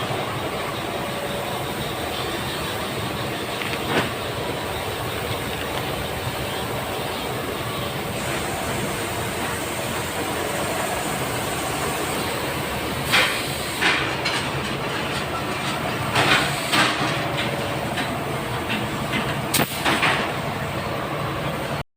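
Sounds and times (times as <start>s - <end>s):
machine running: 0.0s - 21.8s
short hissing bursts: 8.0s - 14.0s.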